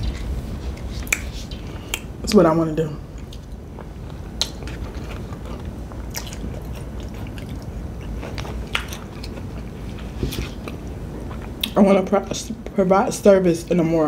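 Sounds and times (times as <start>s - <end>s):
chewing with mouth smacks: 1.0s - 2.1s, 3.2s - 11.8s.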